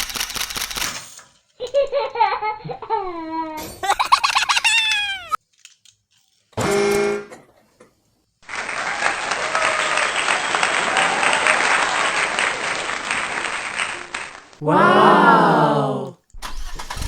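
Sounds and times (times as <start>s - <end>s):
applause: 8.4s - 16.1s.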